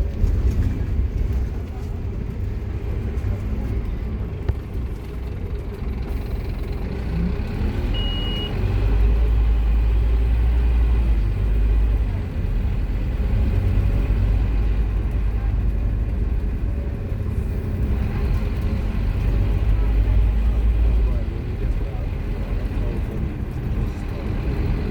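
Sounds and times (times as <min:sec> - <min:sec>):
bus diesel engine rumbling: 0:00.0 - 0:24.9
short high beep: 0:08.0 - 0:08.5.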